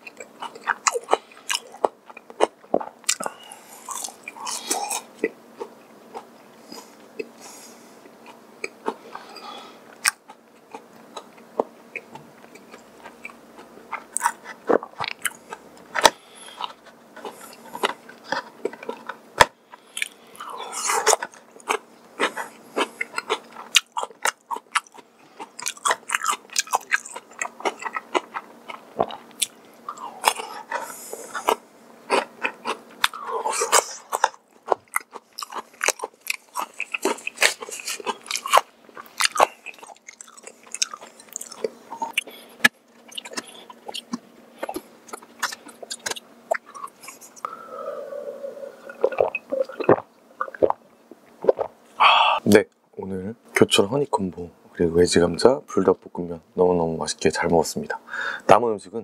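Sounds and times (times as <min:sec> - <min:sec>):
chewing crisp food: 0:00.0 - 0:47.6, 0:48.8 - 0:50.8
wet mouth clicks: 0:48.8 - 0:50.8.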